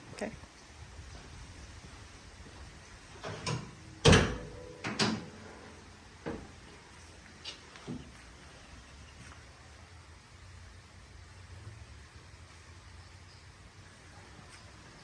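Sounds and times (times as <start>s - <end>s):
clunks and clicks: 3.2s - 5.4s.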